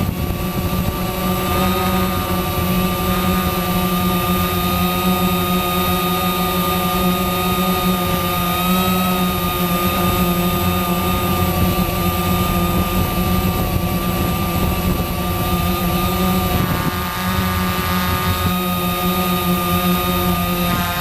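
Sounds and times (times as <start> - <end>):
quadcopter motors buzzing: 0.0 - 21.0.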